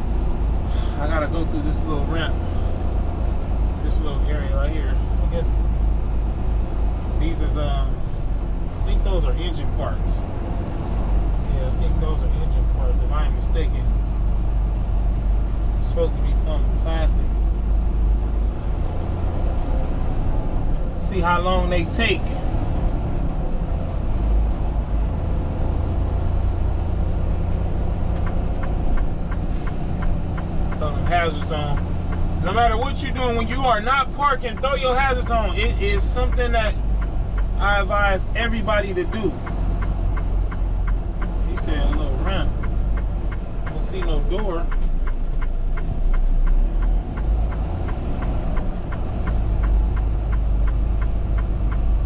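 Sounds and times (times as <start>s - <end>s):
truck engine rumbling: 0.0s - 52.0s.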